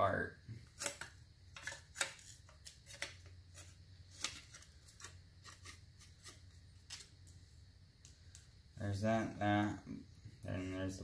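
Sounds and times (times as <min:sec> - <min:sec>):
small metal parts clinking: 0:08.0 - 0:08.7.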